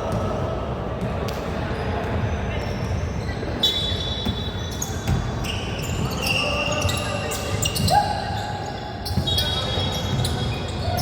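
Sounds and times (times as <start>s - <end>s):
voices in a hall: 0.0s - 11.0s
shoes squeaking on floor: 1.8s - 11.0s
basketball bouncing on court: 4.2s - 6.2s, 9.1s - 11.0s.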